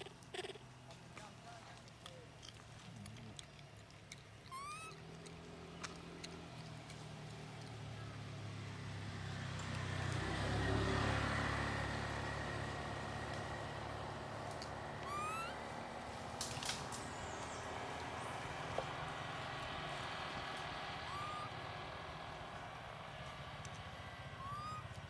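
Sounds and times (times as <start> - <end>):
motor vehicle passing: 0.0 - 25.0
short rising whistle-like call: 21.1 - 21.6, 24.4 - 24.9.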